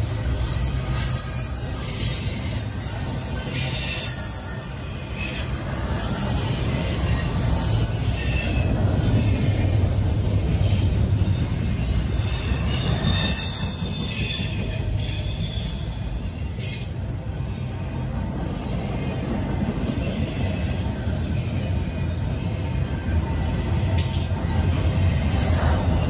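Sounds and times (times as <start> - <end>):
steel wheels rumbling on rail: 0.0 - 26.0
high-pitched wheel squeals: 10.6 - 16.9.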